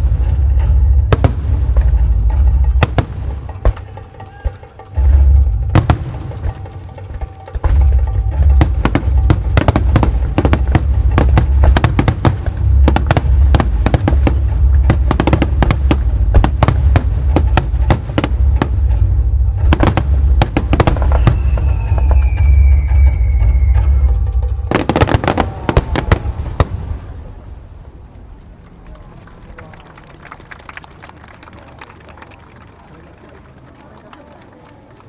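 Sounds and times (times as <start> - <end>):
falling firework whistle: 0.0 - 27.5
firework shells booming and cracking: 0.0 - 29.0.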